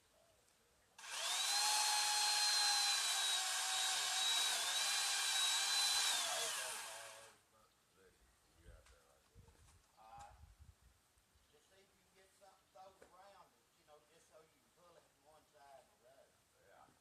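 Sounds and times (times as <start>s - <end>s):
power saw whining: 1.0s - 7.4s.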